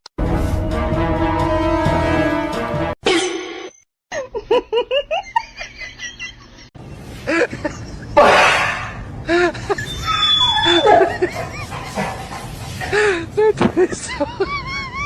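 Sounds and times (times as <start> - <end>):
music: 0.2 - 3.0
person laughing: 4.1 - 8.2, 9.3 - 12.3.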